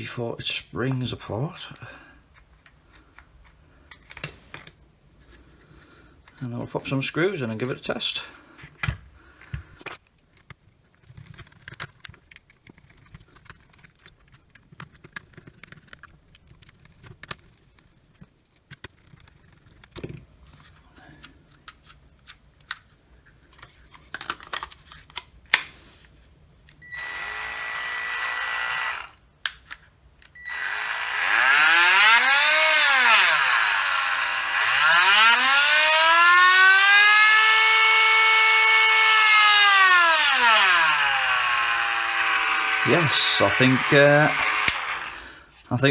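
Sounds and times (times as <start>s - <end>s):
clicks and knocks of handling casing: 8.6s - 25.8s
rotary tool motor whine: 26.8s - 29.2s, 30.4s - 45.4s.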